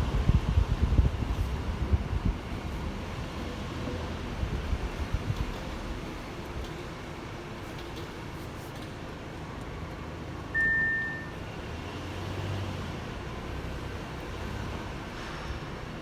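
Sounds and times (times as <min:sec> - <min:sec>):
brake squeal: 0:10.6 - 0:11.4.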